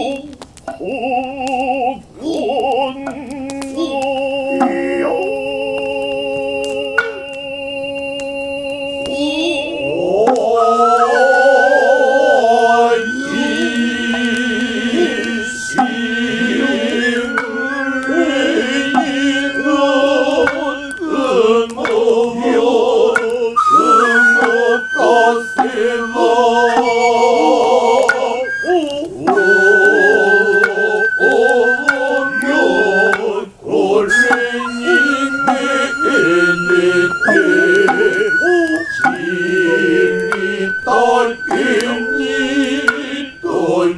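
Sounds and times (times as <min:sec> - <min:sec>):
high sustained flute: 0:00.0 - 0:43.9
voices chanting held tones: 0:00.0 - 0:43.9
sharp drum strokes: 0:12.8 - 0:43.9.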